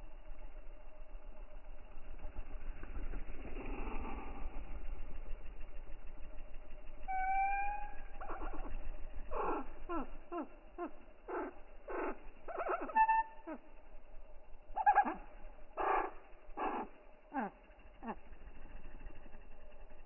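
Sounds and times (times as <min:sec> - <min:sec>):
low hum: 0:00.0 - 0:20.0
animal calling: 0:07.1 - 0:13.9, 0:14.7 - 0:18.4.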